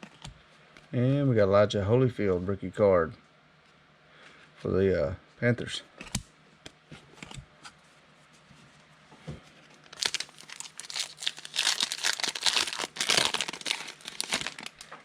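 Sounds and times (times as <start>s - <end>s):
foil wrapper tearing and crinkling: 9.9s - 14.9s.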